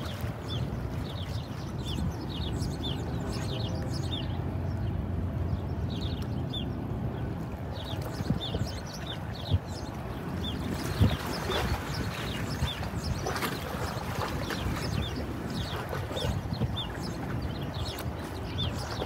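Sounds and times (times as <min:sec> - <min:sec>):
low steady rumble: 0:00.0 - 0:19.0
small birds chirping: 0:00.0 - 0:19.0.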